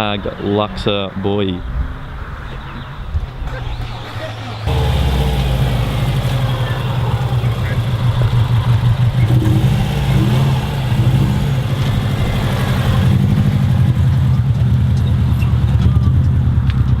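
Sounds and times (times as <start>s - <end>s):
car engine idling: 3.9s - 15.9s.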